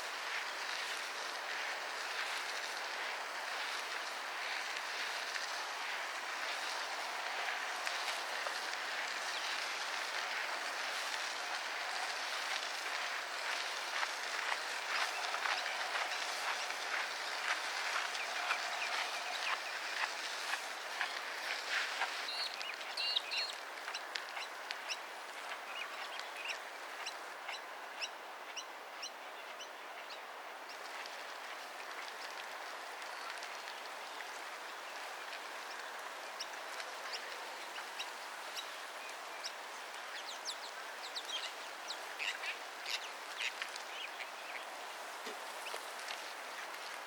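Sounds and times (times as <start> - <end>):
outdoor hiss: 0.0 - 28.4, 30.5 - 47.0
birds chirping: 14.5 - 25.0.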